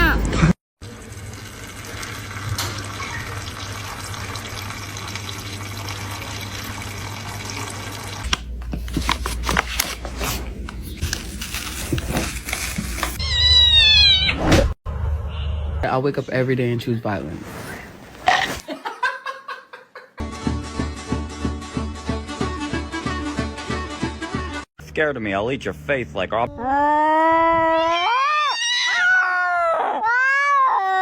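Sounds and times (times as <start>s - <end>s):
cat meowing: 13.2s - 14.4s, 26.6s - 31.0s.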